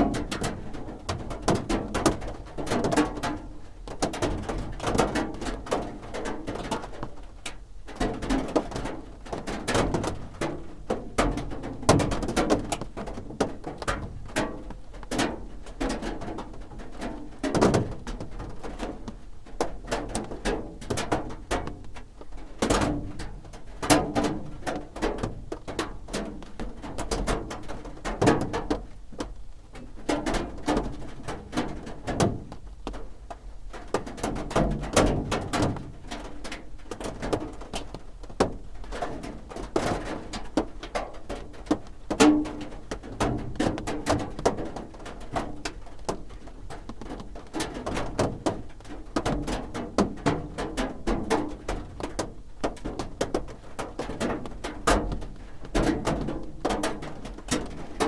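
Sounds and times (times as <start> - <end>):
rain on a roof: 0.0 - 58.0.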